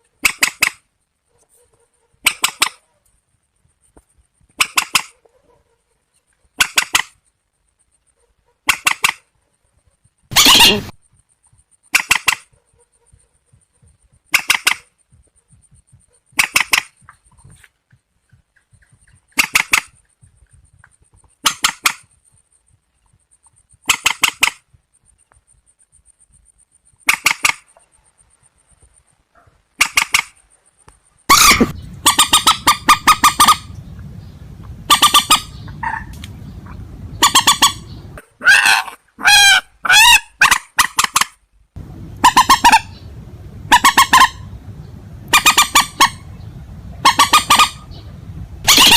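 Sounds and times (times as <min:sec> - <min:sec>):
rail bird calling: 0:10.2 - 0:25.2, 0:26.9 - 0:28.8, 0:29.4 - 0:48.9
faint high pulsing tone: 0:15.0 - 0:16.3
waterbird calling: 0:31.3 - 0:38.2, 0:41.8 - 0:48.9.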